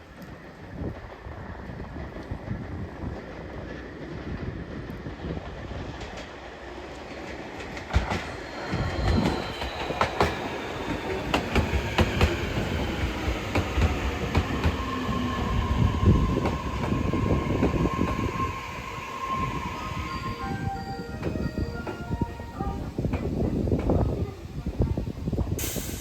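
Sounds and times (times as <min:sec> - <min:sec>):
train wheels clicking: 0:01.6 - 0:22.4
steady squealing tone: 0:07.5 - 0:22.9
train motor whine: 0:07.6 - 0:23.4.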